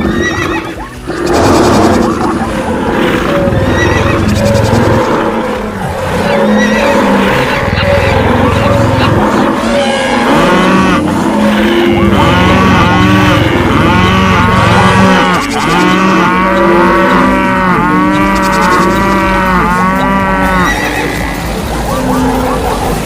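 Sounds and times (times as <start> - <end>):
cattle mooing: 0.0 - 23.0.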